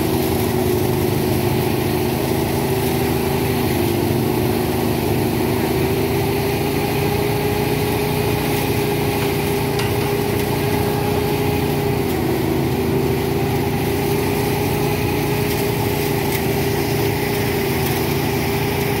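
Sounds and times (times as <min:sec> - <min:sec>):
small engine running: 0:00.0 - 0:19.0
steady whine: 0:06.6 - 0:19.0.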